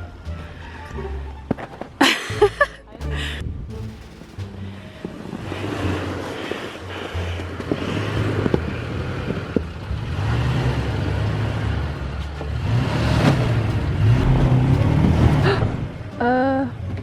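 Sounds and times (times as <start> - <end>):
vehicle engine revving unevenly: 4.0 - 17.0.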